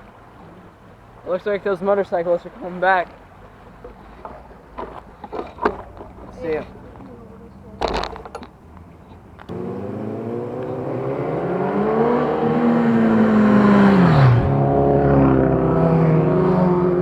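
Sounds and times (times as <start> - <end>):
motorcycle engine running: 4.8 - 13.7
motorcycle riding past: 9.5 - 17.0.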